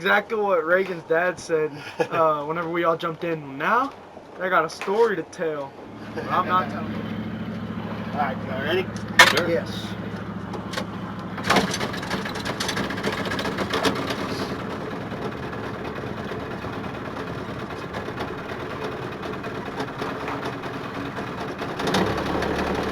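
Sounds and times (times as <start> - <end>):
boat engine running: 5.8 - 22.9.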